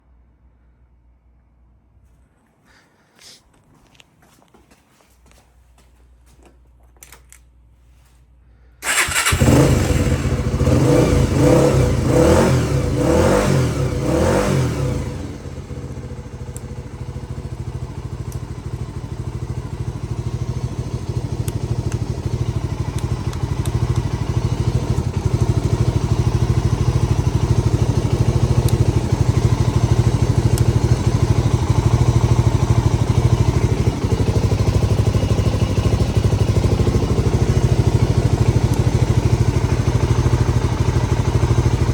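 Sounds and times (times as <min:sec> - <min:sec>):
motorcycle engine starting and revving: 0:08.8 - 0:41.9.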